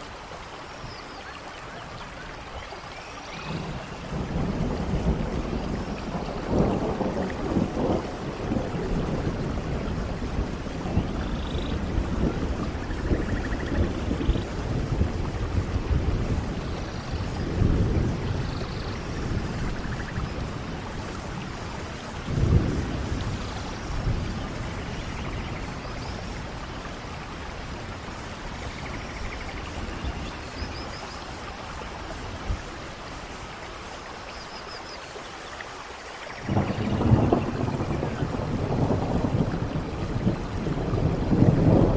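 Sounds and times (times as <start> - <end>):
steady rain: 0.0 - 41.9
thunder rumbling: 3.4 - 30.9, 36.4 - 41.9.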